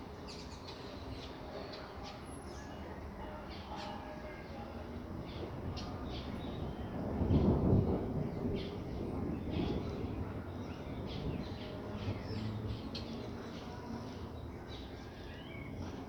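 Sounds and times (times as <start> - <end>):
light rain: 4.7 - 14.5
distant thunder rumble: 6.2 - 12.7.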